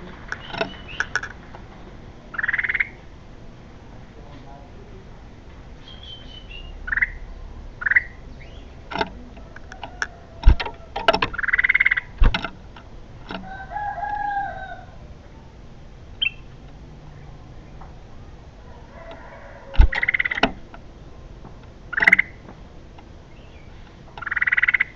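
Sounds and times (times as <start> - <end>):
bird chirps: 0.0 - 1.2, 5.8 - 8.8, 11.3 - 12.1, 16.2 - 17.9, 19.8 - 20.4, 21.9 - 22.4, 23.3 - 24.9
longer bird call: 0.0 - 1.2, 5.8 - 7.2, 18.6 - 20.5
sharp clicks: 0.0 - 1.6, 8.9 - 13.4, 19.8 - 20.9, 21.6 - 22.3.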